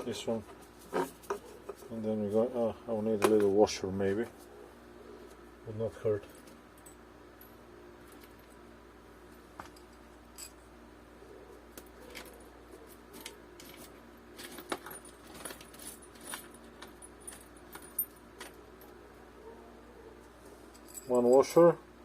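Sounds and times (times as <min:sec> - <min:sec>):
metal washers and nuts clinking: 0:09.2 - 0:10.7, 0:11.7 - 0:19.0, 0:20.6 - 0:21.8.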